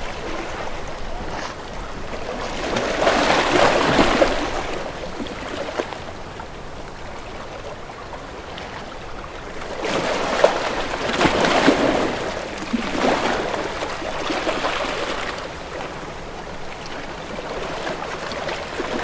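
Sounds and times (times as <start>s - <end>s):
sea waves lapping: 0.0s - 6.2s.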